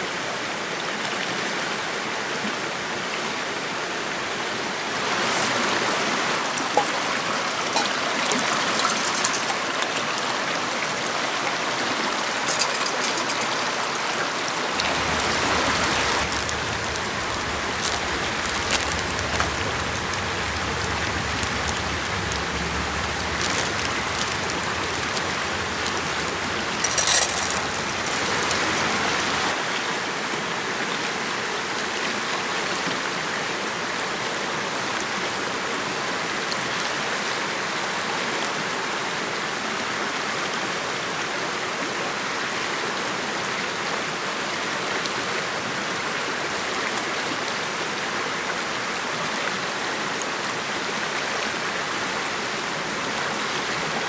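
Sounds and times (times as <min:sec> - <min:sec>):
running water: 0:04.2 - 0:29.6
small clicks and knocks: 0:12.4 - 0:13.6, 0:14.8 - 0:29.5
low rumble: 0:14.8 - 0:26.8.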